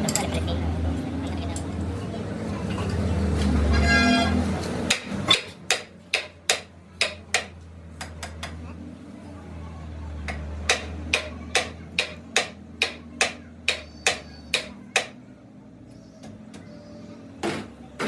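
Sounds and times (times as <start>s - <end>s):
hammer striking metal: 4.9s - 8.6s, 10.3s - 15.2s.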